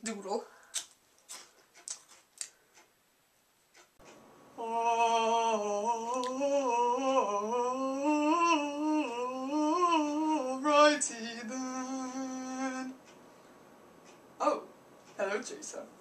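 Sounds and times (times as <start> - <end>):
faint clicks: 0.7 - 3.0
person humming a slow tune: 4.6 - 13.0.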